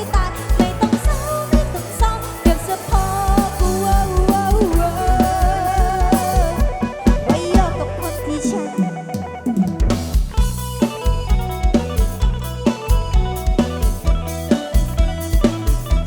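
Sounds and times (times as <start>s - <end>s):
live pop band music: 0.0s - 16.0s
wavering lead melody: 0.0s - 16.0s.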